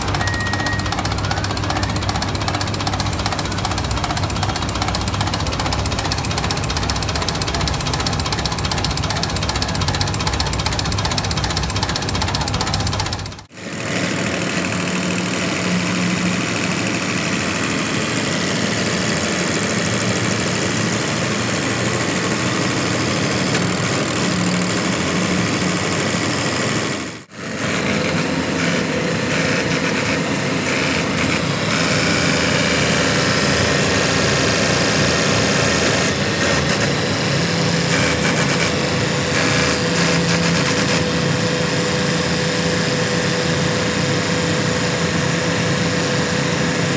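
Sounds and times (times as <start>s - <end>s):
tractor diesel engine idling: 0.0s - 13.5s, 30.6s - 46.9s.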